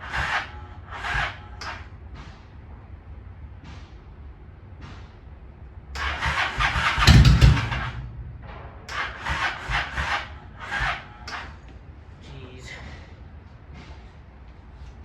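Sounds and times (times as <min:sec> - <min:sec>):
motorcycle starter cranking engine: 0:06.0 - 0:10.1.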